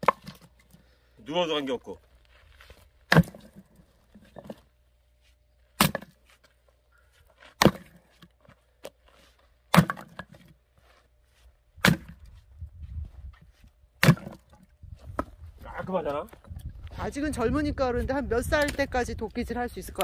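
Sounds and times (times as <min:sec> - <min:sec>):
axe splitting logs: 0:00.0 - 0:00.8, 0:03.0 - 0:04.8, 0:05.6 - 0:06.6, 0:07.4 - 0:10.6, 0:11.8 - 0:12.4, 0:14.0 - 0:15.4.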